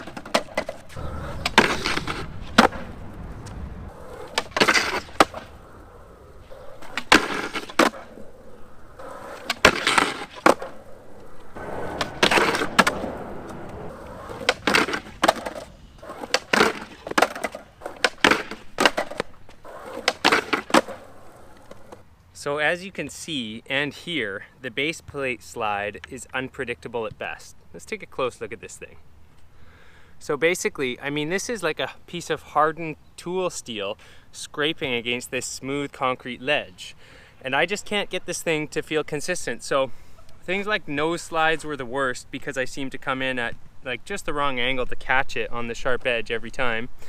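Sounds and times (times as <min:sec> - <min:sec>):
skateboard clacks: 0:00.0 - 0:05.5, 0:06.6 - 0:08.2, 0:09.0 - 0:22.0
metal baseplate scraping concrete: 0:11.4 - 0:18.5.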